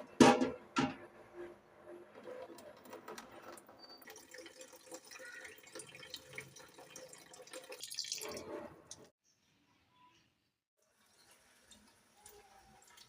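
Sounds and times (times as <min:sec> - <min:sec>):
tap water running in a sink: 0:03.8 - 0:09.1, 0:10.9 - 0:13.0.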